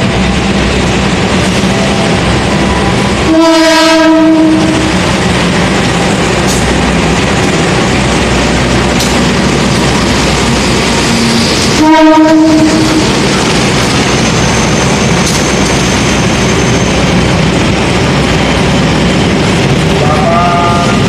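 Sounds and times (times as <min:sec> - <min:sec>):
train wheels rushing on rails: 0:00.0 - 0:21.0
train horn: 0:03.2 - 0:04.9, 0:11.8 - 0:13.1, 0:20.0 - 0:21.0.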